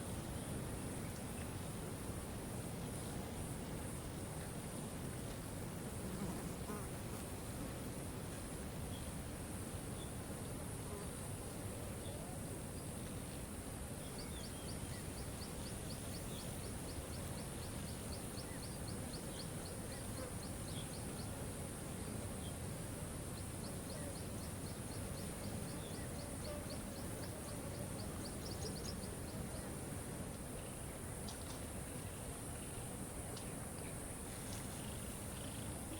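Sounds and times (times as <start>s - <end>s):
faint chirps: 23.3s - 35.9s.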